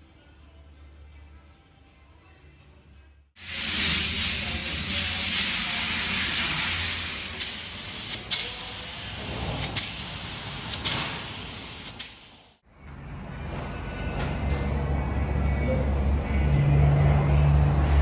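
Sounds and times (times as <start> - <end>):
loud hissing spray: 3.4 - 12.6.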